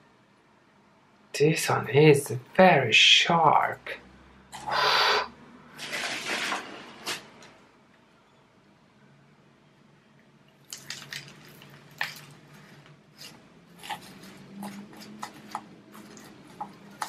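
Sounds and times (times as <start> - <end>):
gritty potting mix crunching: 5.8 - 7.3, 10.6 - 17.0.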